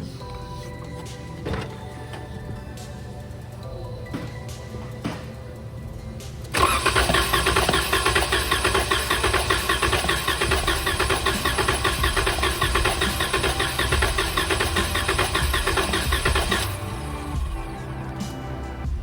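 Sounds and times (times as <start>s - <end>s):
engine cranking without firing: 6.5s - 18.3s.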